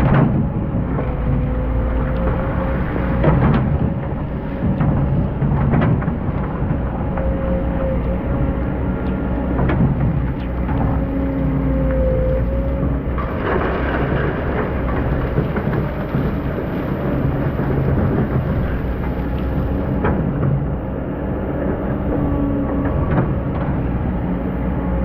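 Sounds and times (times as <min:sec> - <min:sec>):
excavator diesel engine running: 0:00.0 - 0:25.0
bucket grinding through sand: 0:13.1 - 0:20.0.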